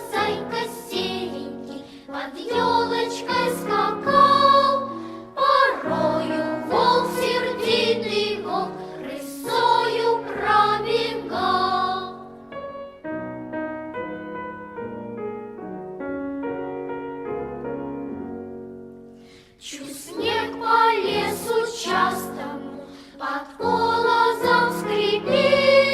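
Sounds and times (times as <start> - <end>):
choir singing: 0.0 - 12.4, 19.6 - 25.9
piano playing: 0.0 - 19.4, 20.1 - 25.9.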